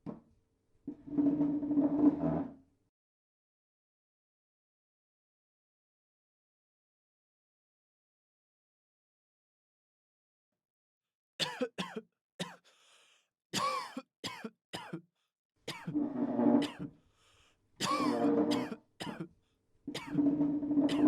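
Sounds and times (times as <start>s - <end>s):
person clearing throat: 11.4s - 12.6s, 13.6s - 15.0s, 15.7s - 16.0s, 16.6s - 16.9s, 17.8s - 19.3s, 20.0s - 20.2s
person coughing: 11.4s - 12.6s, 13.6s - 15.0s, 15.7s - 16.0s, 16.6s - 16.9s, 17.8s - 19.3s, 20.0s - 20.2s.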